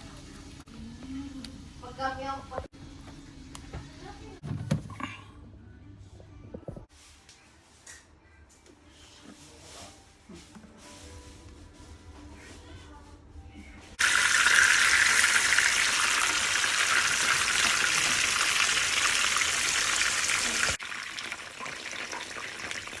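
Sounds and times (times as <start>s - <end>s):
food sizzling in hot oil: 14.0s - 23.0s.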